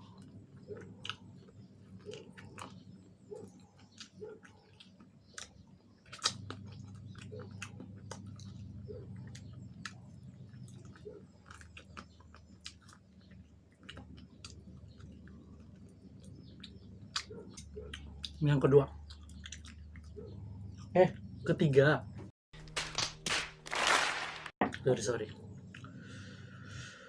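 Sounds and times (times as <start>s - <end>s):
chewing crispy chicken: 0.0s - 20.9s.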